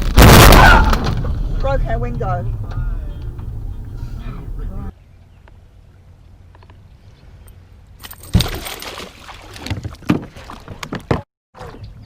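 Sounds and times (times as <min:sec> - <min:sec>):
loud thump: 0:00.0 - 0:04.9
clattering: 0:00.1 - 0:04.9.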